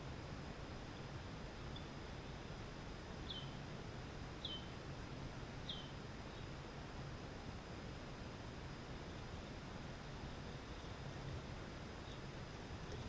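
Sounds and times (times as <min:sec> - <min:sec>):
steady hiss: 0:00.0 - 0:13.0
small bird chirping: 0:00.7 - 0:02.5, 0:03.2 - 0:03.6, 0:04.4 - 0:04.8, 0:05.6 - 0:06.6, 0:12.0 - 0:13.0.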